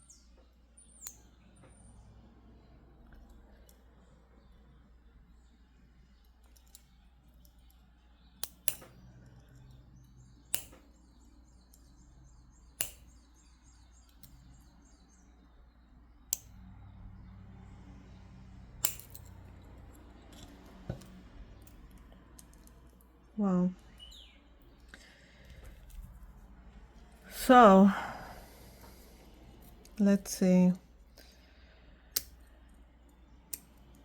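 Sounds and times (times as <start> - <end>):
low steady hum: 0.0 - 34.0
stone beads clicking: 18.8 - 23.1.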